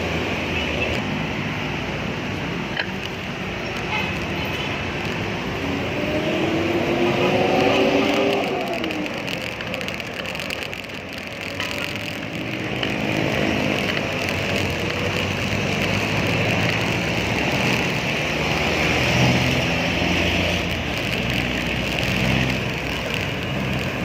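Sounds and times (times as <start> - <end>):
steady traffic hiss: 0.0 - 24.0
vehicles passing: 0.0 - 24.0.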